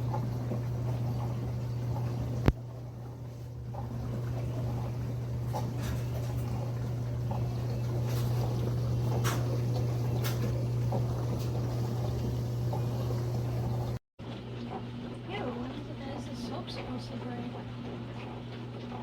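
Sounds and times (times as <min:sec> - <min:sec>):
water spraying and trickling: 0:00.0 - 0:14.0
dishwasher motor hum: 0:00.0 - 0:19.0.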